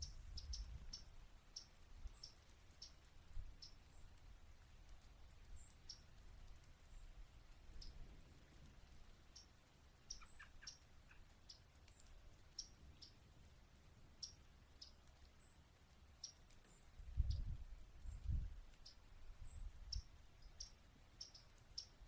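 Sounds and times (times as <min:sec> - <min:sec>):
bird chip calls: 0:09.3 - 0:13.2, 0:19.9 - 0:22.0.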